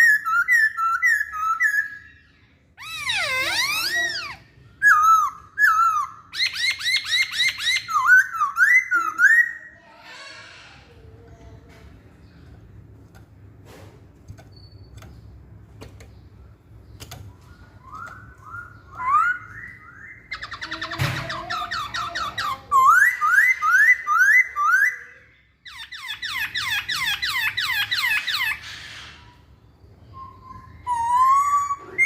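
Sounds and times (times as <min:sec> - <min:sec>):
bird singing whistled notes: 0:17.4 - 0:25.1, 0:29.8 - 0:32.0.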